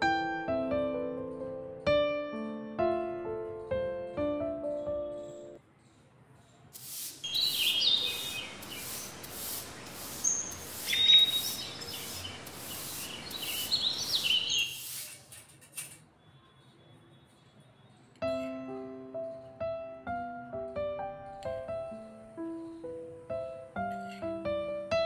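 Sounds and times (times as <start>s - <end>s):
piano music: 0.0s - 5.6s, 18.2s - 25.0s
birds chirping: 4.7s - 15.1s
scratchy rustle: 14.6s - 16.0s.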